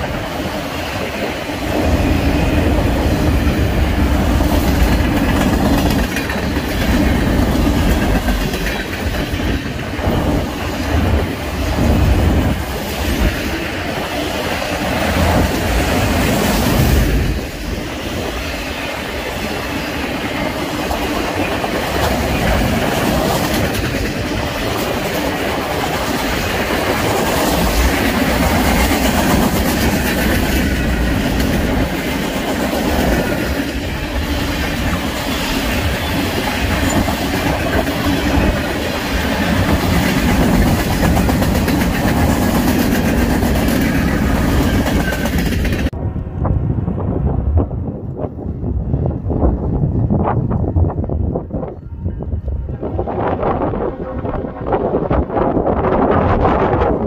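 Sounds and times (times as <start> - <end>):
steel wheels rumbling on rail: 0.0 - 57.0
wheels clacking over rail joints: 2.3 - 17.7, 19.6 - 46.0.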